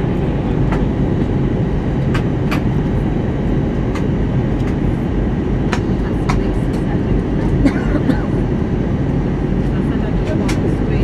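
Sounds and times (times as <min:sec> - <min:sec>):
airliner cabin engine roar: 0:00.0 - 0:11.0.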